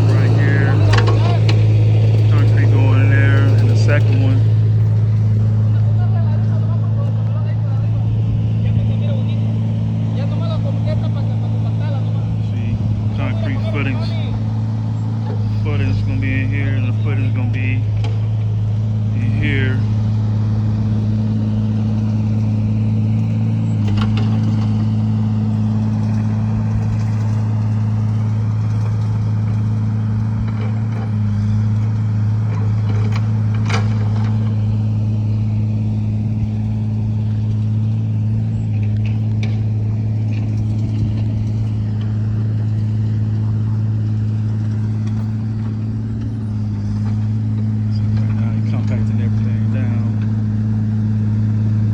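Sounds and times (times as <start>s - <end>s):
engine idling: 0.0s - 51.9s.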